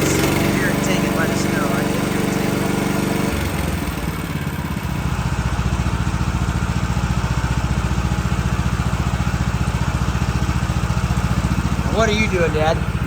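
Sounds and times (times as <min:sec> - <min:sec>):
gas engine idling: 0:00.0 - 0:13.0.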